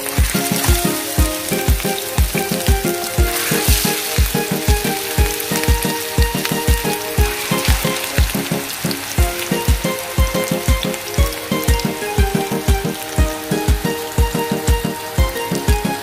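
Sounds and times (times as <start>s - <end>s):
meat patties sizzling in oil: 0.0s - 9.5s
background music with steady beat: 0.0s - 16.0s.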